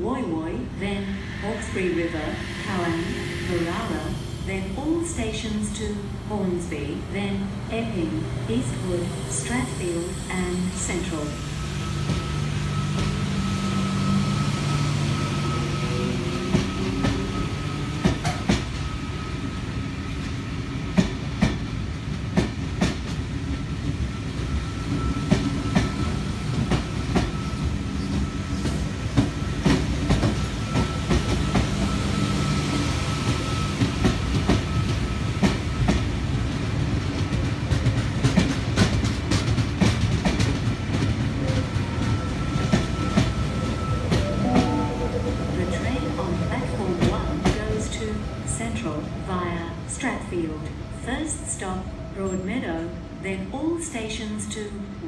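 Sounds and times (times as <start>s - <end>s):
thin high whine: 1.0s - 5.6s.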